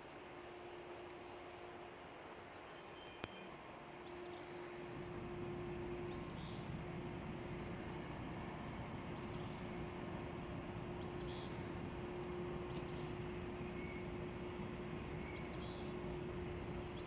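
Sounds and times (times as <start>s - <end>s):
bird chirping: 2.6s - 4.7s, 15.1s - 16.0s
low hum: 4.0s - 17.0s.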